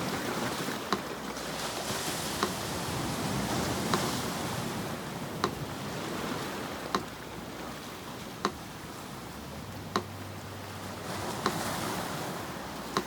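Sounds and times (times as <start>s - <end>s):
sea surf washing: 0.0s - 13.0s
metronome clicking: 0.9s - 1.1s, 5.4s - 5.6s, 8.4s - 8.6s, 9.9s - 10.2s.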